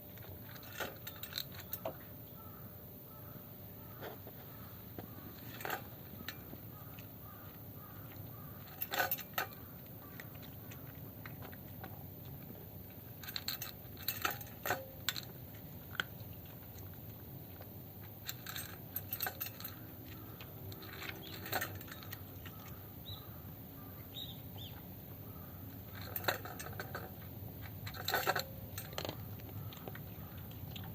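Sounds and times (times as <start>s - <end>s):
cat food clinking against dish: 5.0s - 23.2s, 25.6s - 30.9s.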